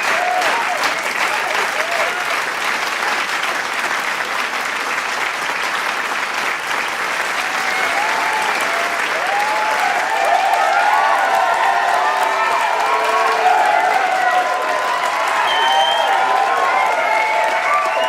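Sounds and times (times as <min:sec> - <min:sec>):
voices cheering and whooping: 0:00.0 - 0:02.3, 0:07.4 - 0:18.0
crowd applauding: 0:00.0 - 0:18.0.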